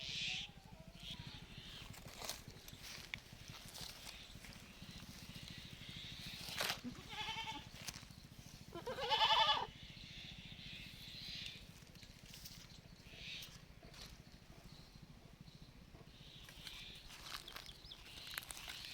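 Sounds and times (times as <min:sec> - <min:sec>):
young goat bleating: 0:06.8 - 0:07.8, 0:08.7 - 0:09.7.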